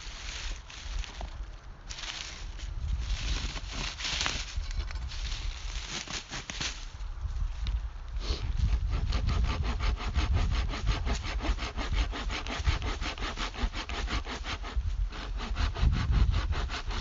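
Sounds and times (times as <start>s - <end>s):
hand saw cutting wood: 8.5s - 17.0s.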